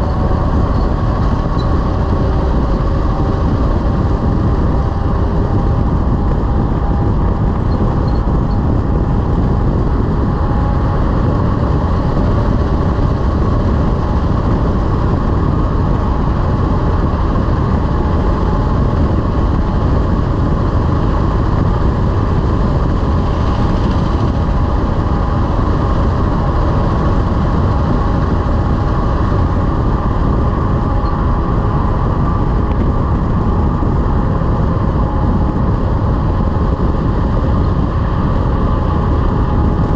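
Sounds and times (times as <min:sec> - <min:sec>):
road noise: 0:00.0 - 0:39.9
truck engine rumble: 0:00.0 - 0:39.9.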